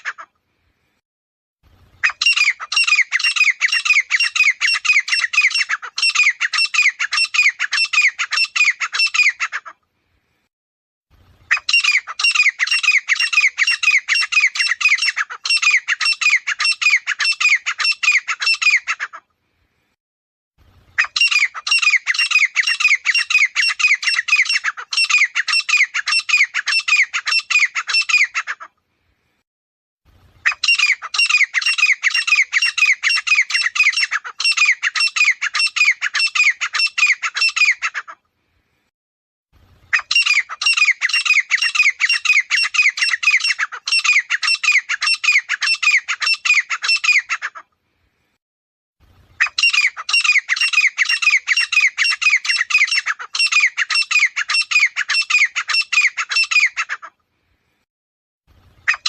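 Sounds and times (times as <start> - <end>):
francolin calling: 49.4 - 56.9.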